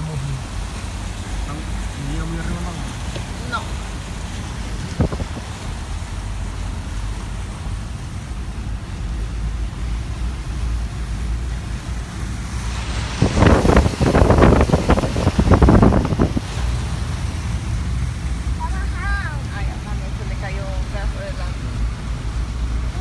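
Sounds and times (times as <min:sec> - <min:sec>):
wind buffeting microphone: 0:03.2 - 0:06.8, 0:12.3 - 0:19.6.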